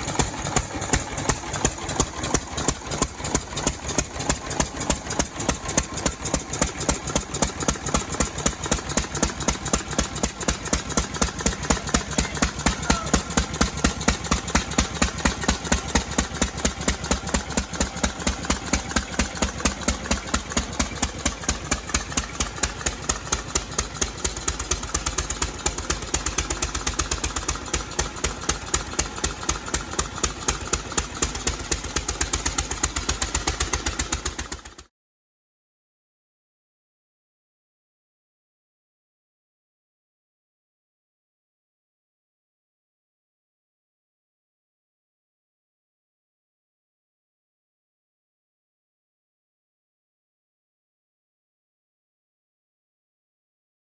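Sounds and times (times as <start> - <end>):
engine firing strokes: 0.0 - 17.2.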